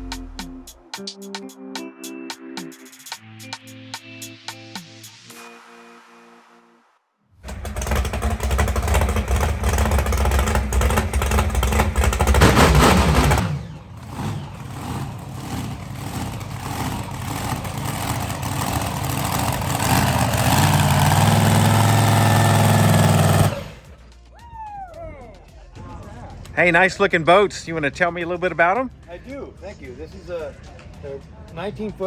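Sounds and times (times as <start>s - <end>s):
engine revving: 7.4s - 24.1s.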